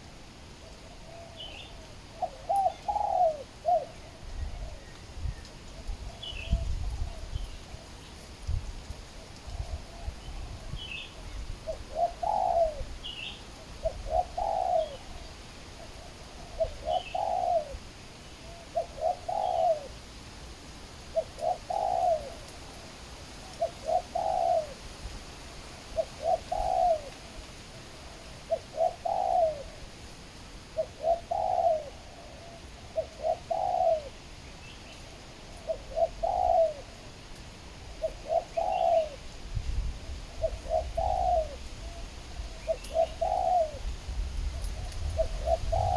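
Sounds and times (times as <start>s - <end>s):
dove cooing: 0.0s - 5.0s, 9.2s - 20.0s, 21.1s - 24.9s, 25.9s - 30.0s, 30.7s - 34.2s, 35.4s - 37.2s, 37.9s - 39.3s, 40.0s - 45.9s.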